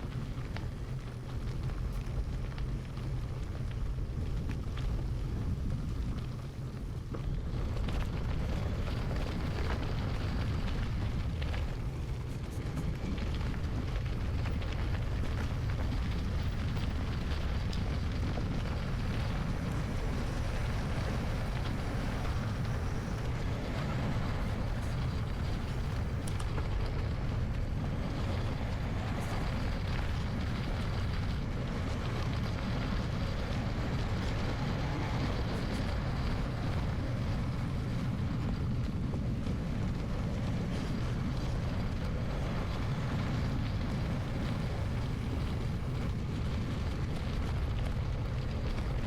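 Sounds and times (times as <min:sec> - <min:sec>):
bike tyres rolling on road: 0:00.0 - 0:49.0
wind rush on microphone: 0:00.0 - 0:49.0.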